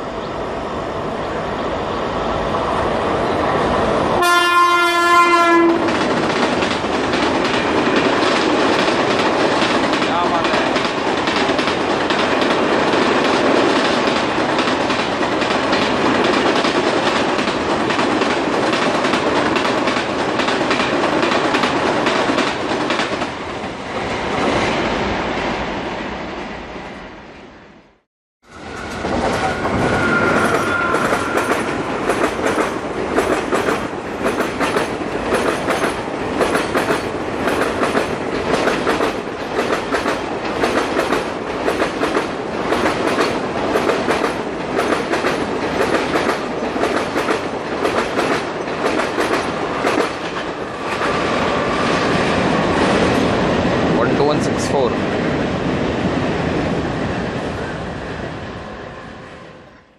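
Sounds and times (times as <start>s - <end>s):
rhythmic clickety-clack of coaches: 5.8s - 23.3s, 31.1s - 51.1s
train wheels clattering over rail joints: 5.8s - 23.3s, 30.4s - 51.3s.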